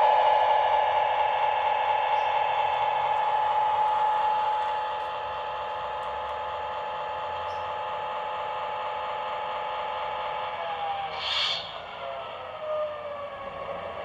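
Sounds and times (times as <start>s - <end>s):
model locomotive motor whine and hum: 0.0s - 14.0s
short hiss: 11.1s - 11.9s.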